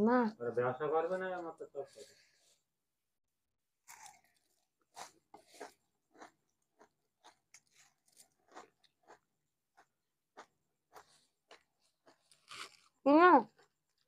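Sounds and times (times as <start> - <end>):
crunching and chewing fried food: 3.8 - 14.0.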